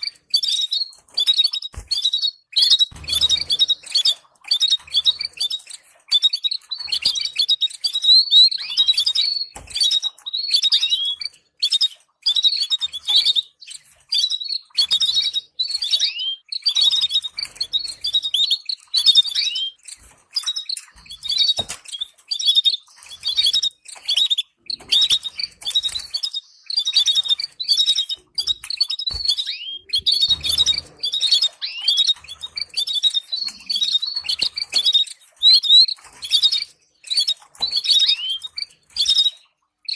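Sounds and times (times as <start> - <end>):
finch chirping song: 0.0 - 39.9.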